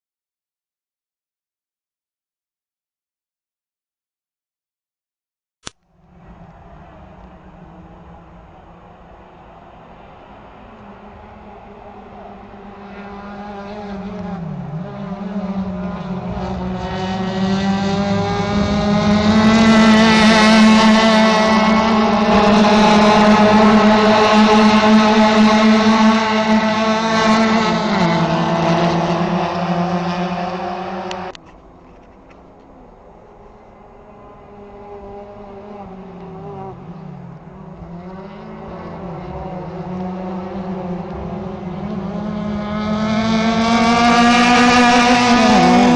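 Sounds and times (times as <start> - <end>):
racing car engine at high revs: 6.0 - 31.4, 33.7 - 45.9.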